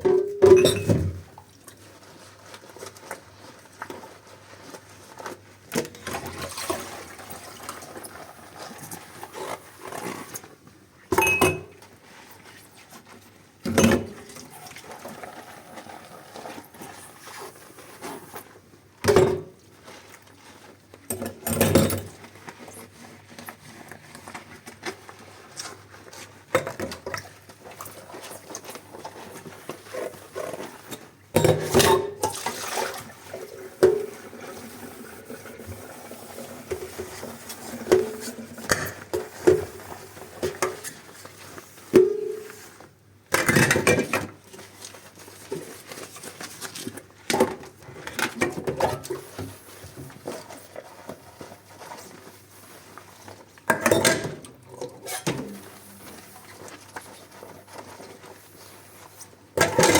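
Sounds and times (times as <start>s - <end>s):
crockery and cutlery clinking: 11.2s - 11.7s
water splashing in sink: 26.6s - 42.5s.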